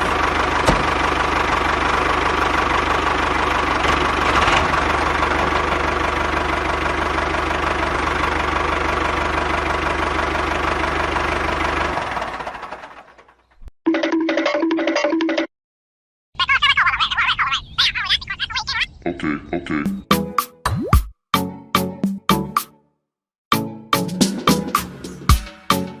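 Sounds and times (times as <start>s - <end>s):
engine running: 0.0s - 13.6s.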